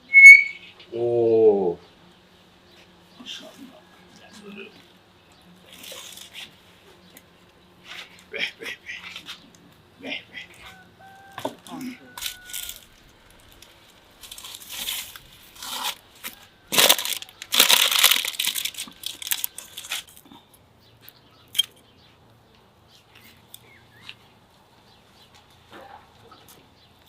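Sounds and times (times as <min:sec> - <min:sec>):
tearing and crinkling: 0:05.6 - 0:06.6, 0:12.2 - 0:20.3.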